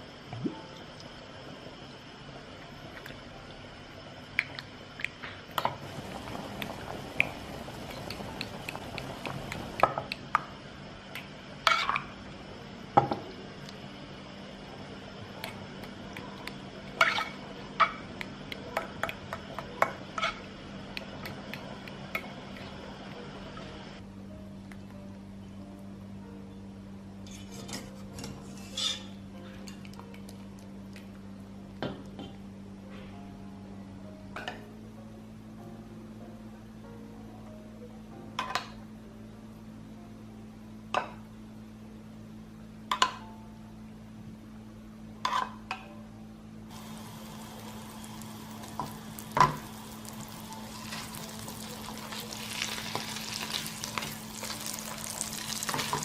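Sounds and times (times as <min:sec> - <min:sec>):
low hum: 0:05.8 - 0:11.6, 0:45.9 - 0:56.0.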